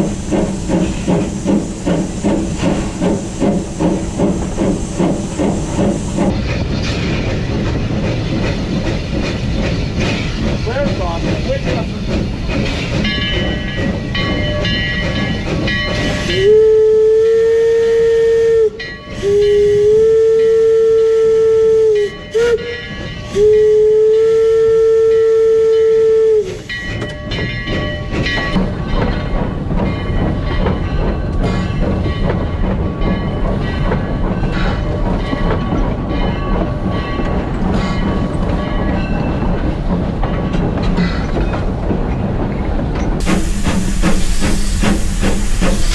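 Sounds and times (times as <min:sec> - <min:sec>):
train hiss and rumble: 0:00.0 - 0:45.9
steam locomotive whistle blasts: 0:16.1 - 0:26.9.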